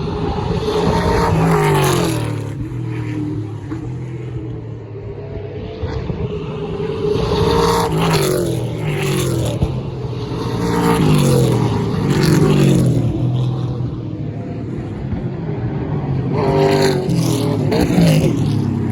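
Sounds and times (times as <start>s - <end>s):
cars passing with engines roaring: 0.0s - 18.9s.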